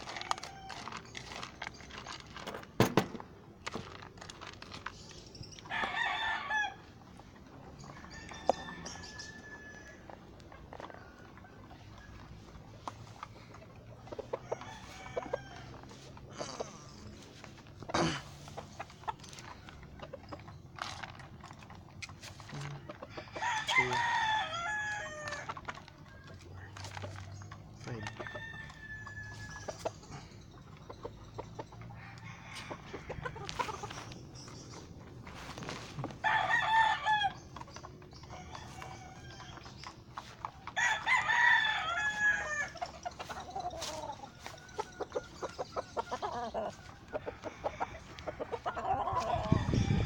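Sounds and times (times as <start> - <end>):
rooster crowing: 5.7 - 6.8, 8.1 - 10.1, 23.4 - 25.5, 36.2 - 37.4, 40.8 - 42.8, 47.3 - 50.0
faint clatter: 16.4 - 23.1.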